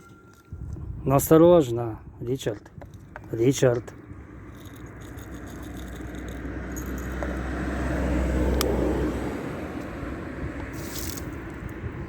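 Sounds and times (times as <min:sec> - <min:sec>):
car engine passing: 0:04.2 - 0:11.2.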